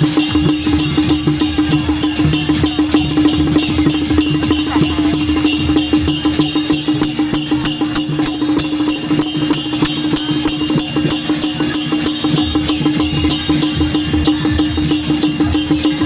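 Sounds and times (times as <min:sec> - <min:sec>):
drums and cymbals beating: 0:00.0 - 0:16.0.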